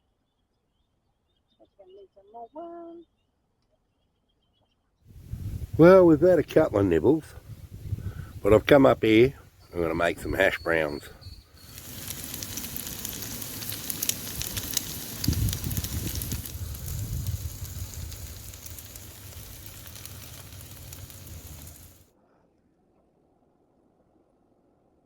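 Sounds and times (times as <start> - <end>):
hash browns sizzling: 5.1 - 22.1.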